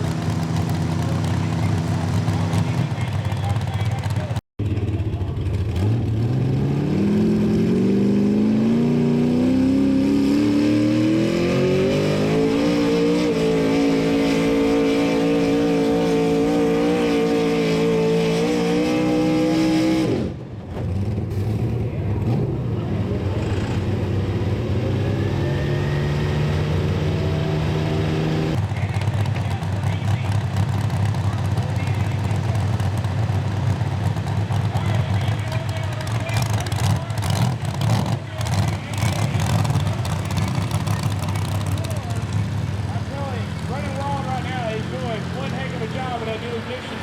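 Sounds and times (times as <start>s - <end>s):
lower engine running: 0.0s - 9.4s, 21.8s - 47.0s
pulling truck engine at full throttle: 0.0s - 47.0s.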